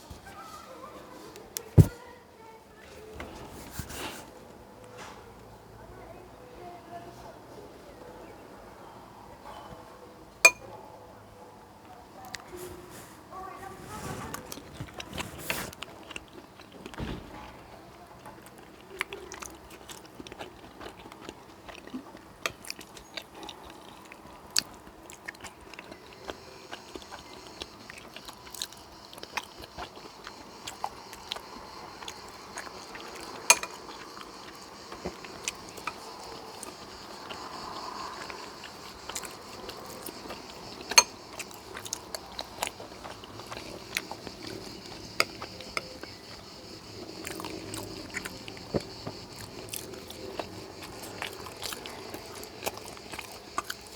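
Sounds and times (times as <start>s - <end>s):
person chewing food: 14.3s - 17.2s, 18.0s - 53.9s.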